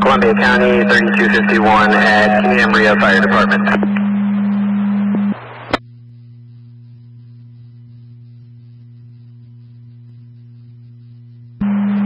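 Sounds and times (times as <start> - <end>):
radio static hiss: 0.0 - 9.6
low electrical hum: 0.0 - 12.0.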